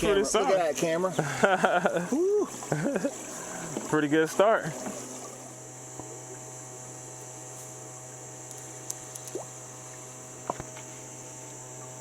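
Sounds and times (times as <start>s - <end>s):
low electric hum: 0.0s - 12.0s
faint water sounds: 0.1s - 8.2s
small clicks: 8.5s - 9.4s.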